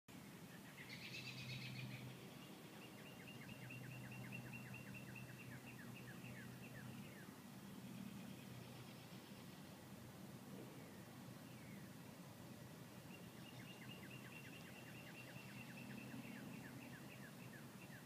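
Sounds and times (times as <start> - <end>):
bird chirping phrase: 13.1 - 18.0.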